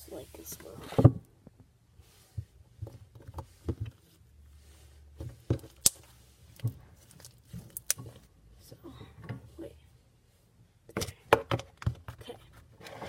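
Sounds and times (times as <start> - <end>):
slime clicking and popping: 5.8 - 6.0.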